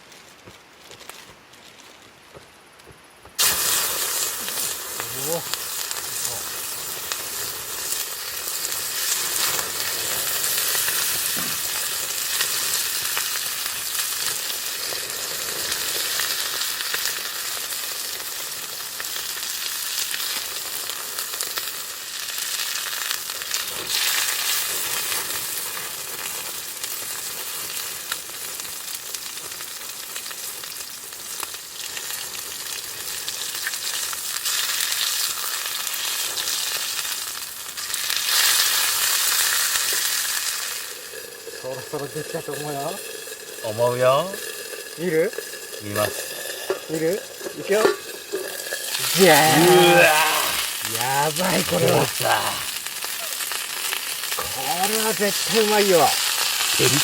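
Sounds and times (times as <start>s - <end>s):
chicken sizzling in a pan: 3.4s - 57.0s.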